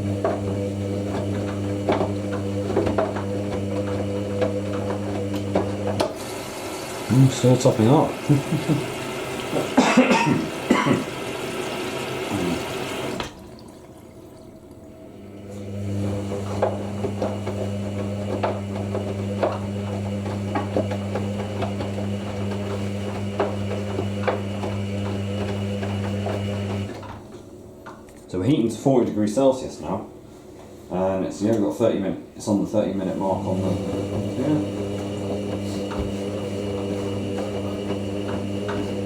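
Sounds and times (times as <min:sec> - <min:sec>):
water rushing into washing machine: 0:00.0 - 0:27.4, 0:32.9 - 0:39.0
washing machine drum humming: 0:00.0 - 0:28.2, 0:32.5 - 0:39.0.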